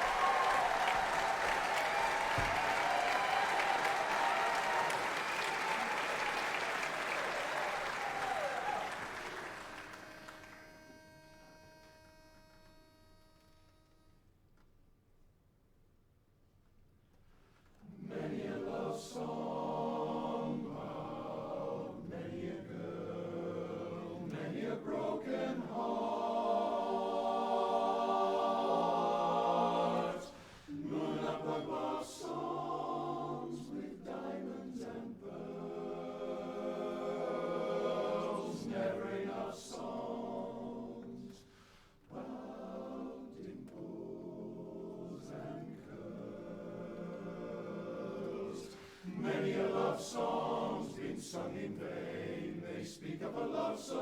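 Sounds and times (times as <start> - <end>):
male chorus singing a cappella: 17.8 - 54.0.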